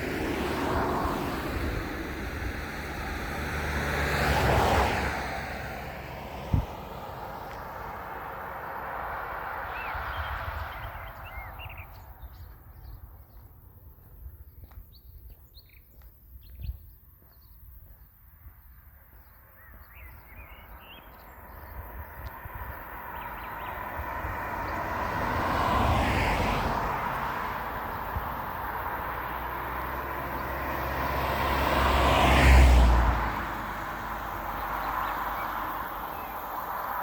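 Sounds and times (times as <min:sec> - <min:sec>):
vehicle passing: 0:00.0 - 0:13.6, 0:19.6 - 0:37.0
thump: 0:06.5 - 0:06.8
small birds chirping: 0:09.6 - 0:24.9.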